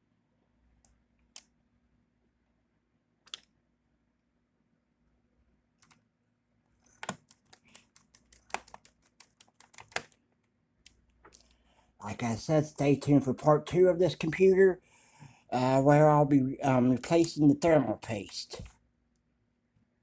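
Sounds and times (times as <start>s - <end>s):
laptop clicks and taps: 3.2s - 3.5s, 6.9s - 10.2s.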